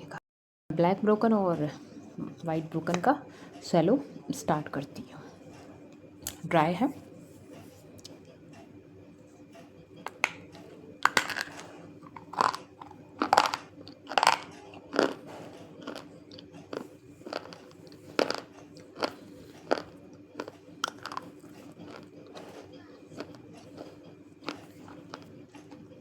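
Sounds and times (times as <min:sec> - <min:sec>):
crunchy chewing: 0:10.1 - 0:26.0.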